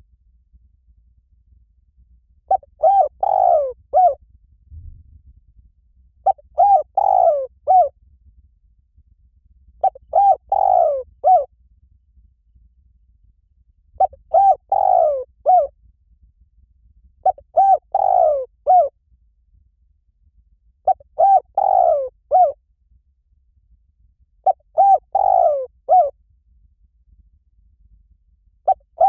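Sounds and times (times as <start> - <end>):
dove cooing: 2.5 - 4.2, 6.2 - 7.9, 9.8 - 11.5, 14.0 - 15.7, 17.2 - 18.9, 20.8 - 22.6, 24.4 - 26.1, 28.7 - 29.0.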